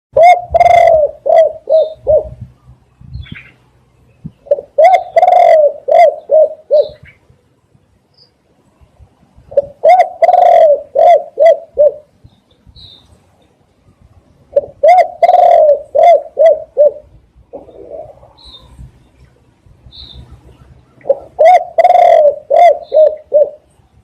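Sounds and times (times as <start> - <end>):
dove cooing: 0.2 - 2.5, 4.4 - 7.2, 9.5 - 12.1, 14.5 - 18.8, 20.3 - 23.7
small birds chirping: 1.7 - 5.5, 7.9 - 9.0, 12.2 - 15.6, 17.5 - 24.0.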